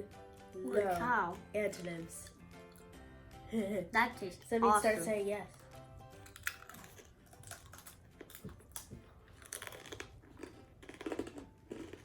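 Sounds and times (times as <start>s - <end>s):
person chewing and crunching: 5.5s - 12.0s.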